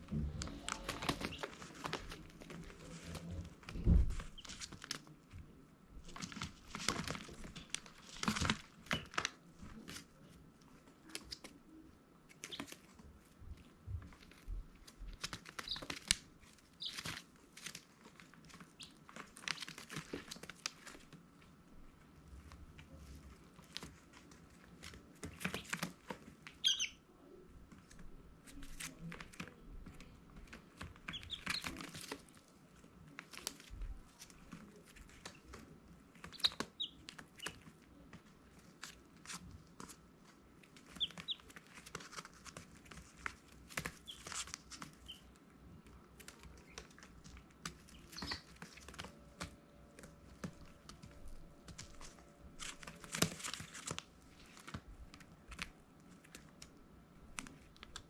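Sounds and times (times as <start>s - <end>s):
chicks peeping: 0.1s - 2.2s, 12.3s - 12.8s, 13.9s - 16.2s, 16.8s - 17.2s, 18.7s - 20.3s, 25.3s - 27.0s, 30.8s - 32.2s, 36.2s - 37.6s, 40.8s - 42.2s, 43.9s - 45.3s, 47.6s - 49.6s.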